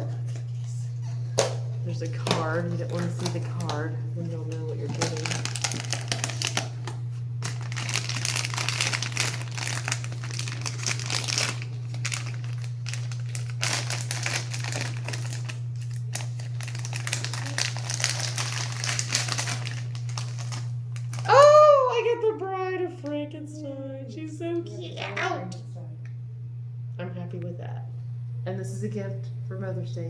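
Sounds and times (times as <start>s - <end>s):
steady low hum: 0.0s - 30.0s
packaging crinkling: 2.7s - 21.5s.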